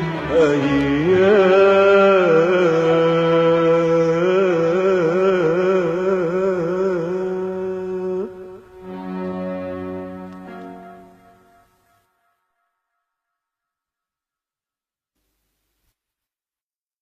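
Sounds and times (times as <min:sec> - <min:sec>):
music: 0:00.0 - 0:14.2.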